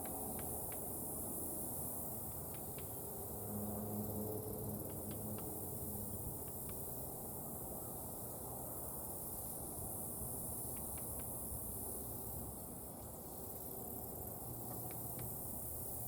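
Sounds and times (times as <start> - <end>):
woodpecker tapping on nut: 0.0 - 0.9, 2.5 - 3.0, 4.8 - 5.5, 6.4 - 6.9, 10.6 - 11.4, 14.7 - 15.4
high insect hiss: 0.0 - 16.0.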